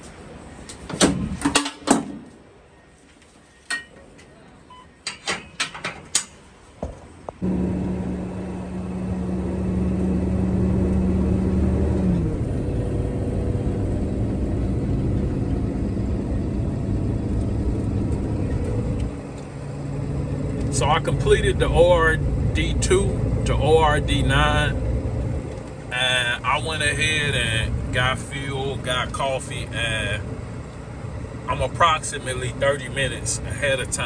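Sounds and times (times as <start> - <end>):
truck engine starting and running: 0.0 - 2.8, 5.0 - 34.0
sharp clunks and clicks: 0.7 - 2.4, 5.0 - 7.0.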